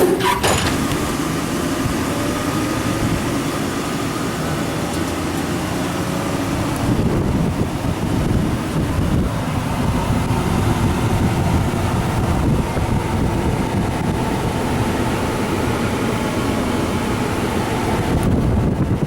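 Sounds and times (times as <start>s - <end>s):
truck engine running: 0.0s - 19.0s
wind on microphone: 6.5s - 15.5s, 17.1s - 19.0s.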